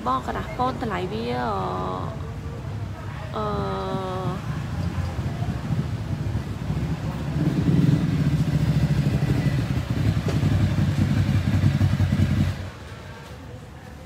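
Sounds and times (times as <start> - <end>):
motorcycle engine running: 3.6 - 13.0.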